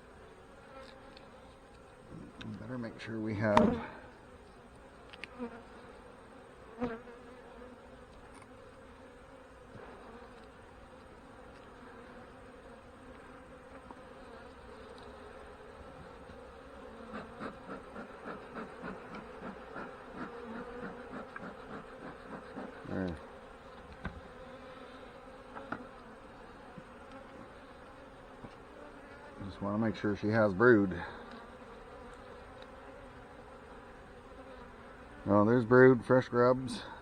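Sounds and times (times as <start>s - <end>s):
honey bees buzzing: 0.0s - 37.0s.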